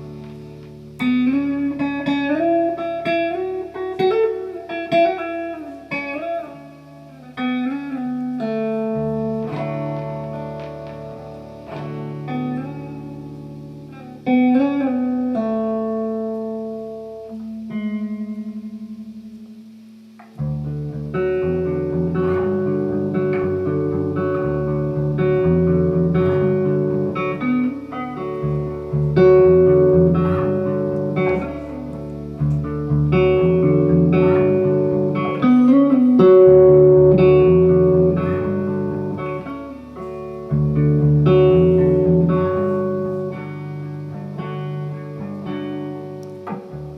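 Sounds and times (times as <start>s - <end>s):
electric guitar ringing notes: 0.0s - 46.9s
bass line: 20.4s - 45.5s.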